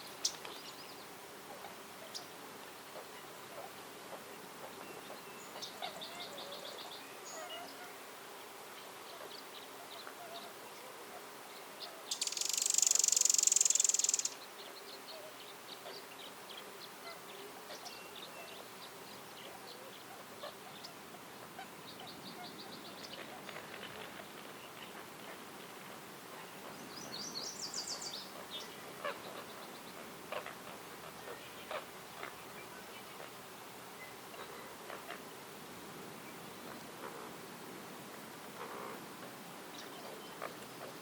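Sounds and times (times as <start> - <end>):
high bird chirps: 12.1 - 14.4
rapid bird trill: 12.1 - 14.4.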